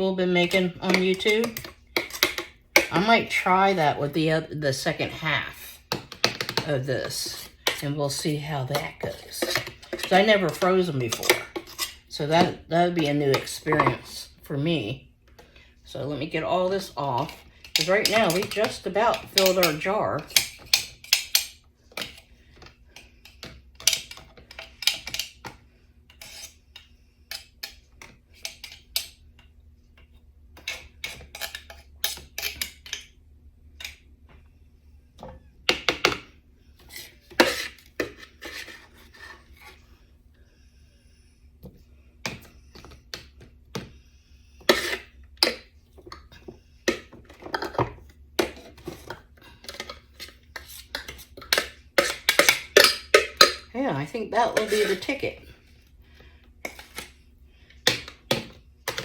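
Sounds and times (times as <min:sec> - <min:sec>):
utensils scraping and clinking dishes: 0:06.3 - 0:14.2, 0:16.8 - 0:22.3, 0:36.8 - 0:39.9, 0:44.6 - 0:55.6.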